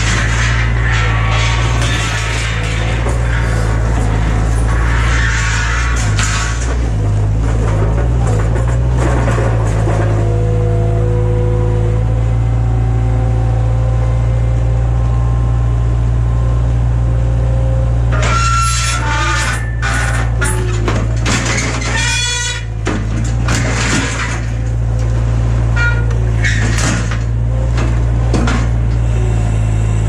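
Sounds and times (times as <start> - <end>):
noisy clatter: 0.0 - 10.4, 18.1 - 29.0
low engine hum: 5.9 - 18.2, 22.7 - 30.0.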